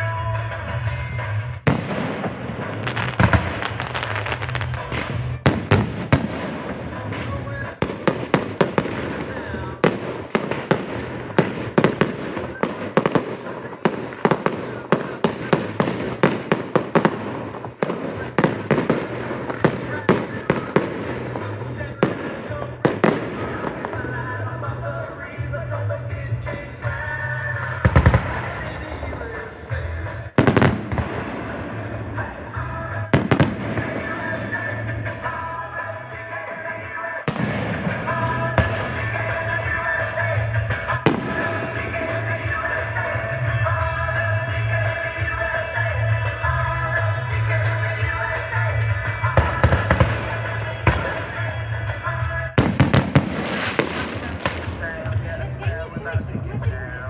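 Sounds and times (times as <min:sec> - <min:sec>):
music with steady bass: 0:00.0 - 0:57.0
fireworks banging: 0:01.7 - 0:57.0.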